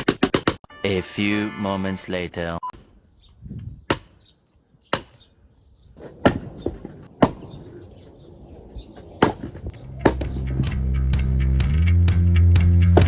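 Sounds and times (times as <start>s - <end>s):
axe chopping firewood: 3.9s - 4.2s, 4.9s - 5.2s, 6.0s - 10.9s, 12.6s - 13.0s.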